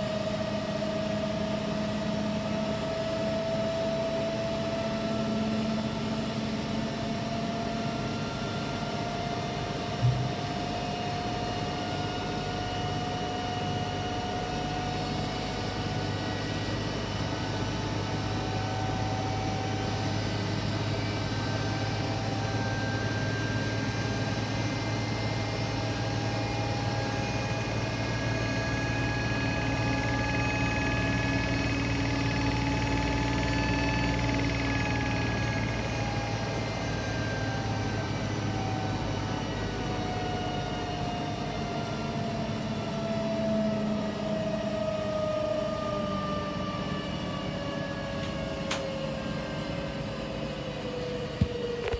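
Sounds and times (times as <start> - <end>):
short knock: 10.0 - 10.4.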